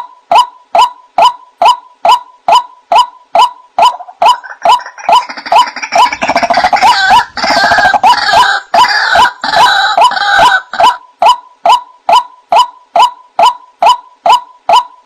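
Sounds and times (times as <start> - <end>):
harsh croaking bird calls: 0.8 - 11.0.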